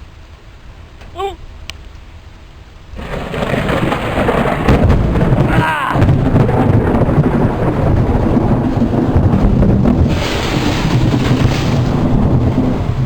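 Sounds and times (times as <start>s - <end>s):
wind-driven rain hissing: 0.0s - 13.0s
thunder rumbling: 2.9s - 13.0s
wind buffeting microphone: 3.0s - 13.0s.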